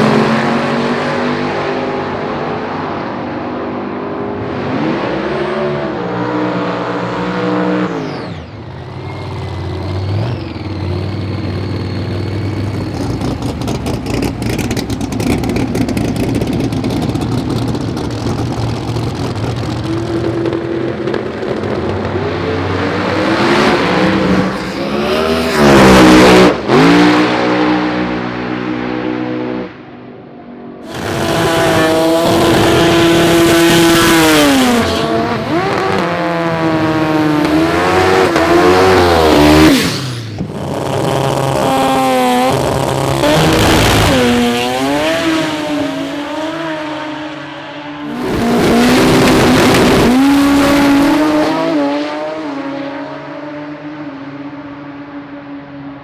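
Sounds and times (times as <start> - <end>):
drag racing engines revving: 0.0 - 29.8, 30.8 - 54.2
engine crackling pops: 30.9 - 44.5.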